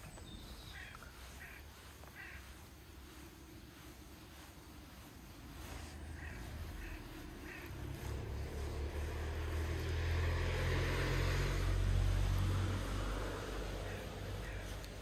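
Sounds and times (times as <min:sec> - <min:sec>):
vehicle engine approaching: 0:00.0 - 0:15.0
crow cawing: 0:00.7 - 0:02.8, 0:06.0 - 0:09.6, 0:13.5 - 0:15.0.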